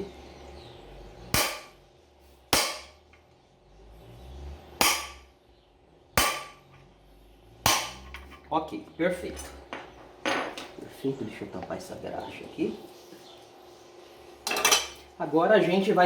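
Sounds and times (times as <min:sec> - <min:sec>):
hammer tapping on metal: 0:02.6 - 0:03.0, 0:04.8 - 0:05.3, 0:06.2 - 0:06.6, 0:07.7 - 0:08.3.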